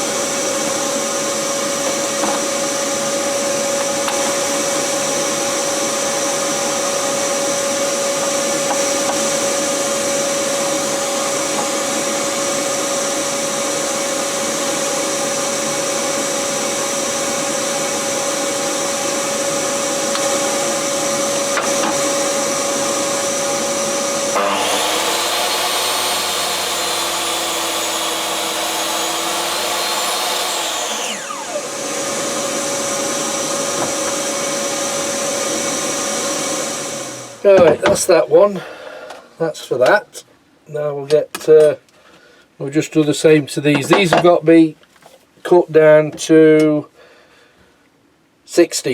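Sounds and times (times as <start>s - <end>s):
woodworking power tool motor whine: 0.0s - 37.8s.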